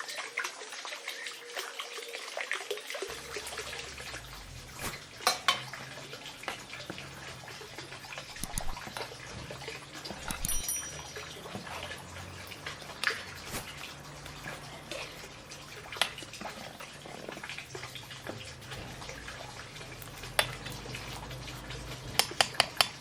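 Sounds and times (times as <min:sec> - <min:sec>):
water dripping and sloshing: 0:00.0 - 0:23.0
kitchenware clicks and taps: 0:04.8 - 0:05.7, 0:08.3 - 0:09.1, 0:10.0 - 0:11.9, 0:20.0 - 0:20.8, 0:22.0 - 0:23.0.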